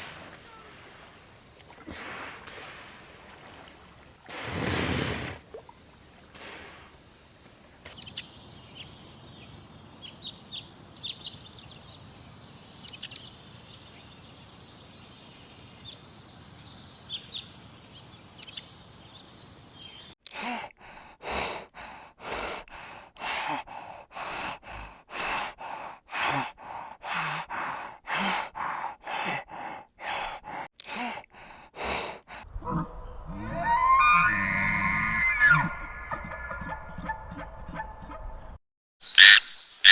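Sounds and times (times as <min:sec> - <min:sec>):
high bird chirps: 0:08.0 - 0:14.2, 0:39.0 - 0:39.9.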